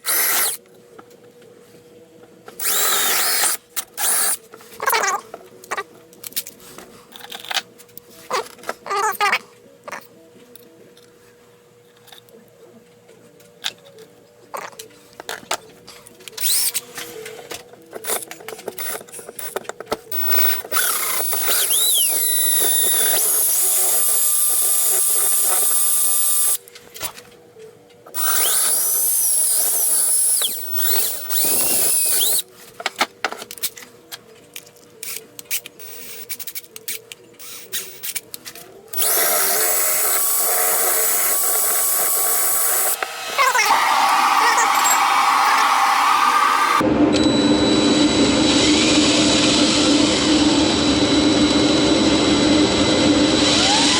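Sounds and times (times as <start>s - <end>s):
power drill motor whine: 0.0s - 0.6s, 2.6s - 4.4s, 16.4s - 16.8s, 20.1s - 26.6s, 28.2s - 32.4s, 38.9s - 53.9s
tools clicking and tapping: 17.4s - 23.2s.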